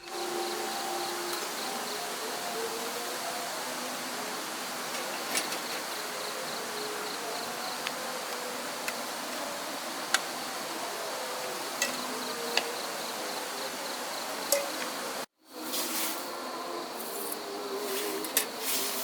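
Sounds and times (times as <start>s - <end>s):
insect chirring: 4.1s - 15.2s.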